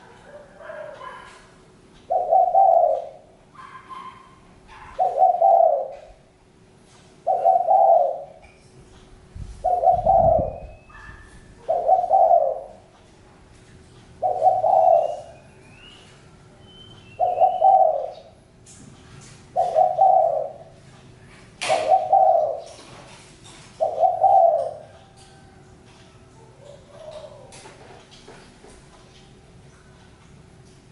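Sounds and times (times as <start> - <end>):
dove cooing: 2.1 - 4.1, 4.7 - 6.3, 7.2 - 8.5, 9.6 - 12.9, 14.2 - 16.2, 17.1 - 18.4, 19.5 - 20.9, 21.6 - 23.1, 23.7 - 25.0, 26.4 - 28.0
small birds chirping: 14.2 - 18.4.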